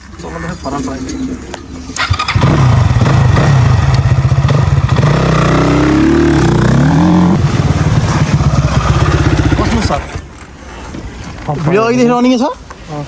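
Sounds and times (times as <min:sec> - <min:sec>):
dirt bike engine revving: 0:02.0 - 0:10.1.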